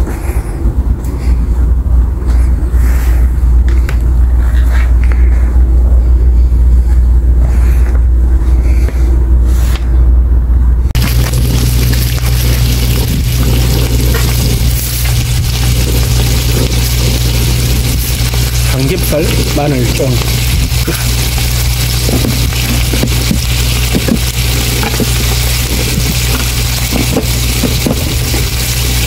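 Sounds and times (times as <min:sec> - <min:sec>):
low hum: 0:00.0 - 0:29.0
low rumble: 0:00.0 - 0:29.0
meat sizzling in a frying pan: 0:11.0 - 0:29.0.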